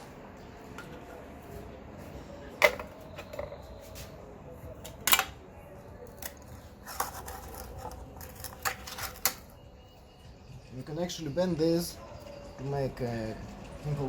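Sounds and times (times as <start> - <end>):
metal cans and lids clicking: 2.6 - 3.6, 5.0 - 5.4, 6.1 - 9.5.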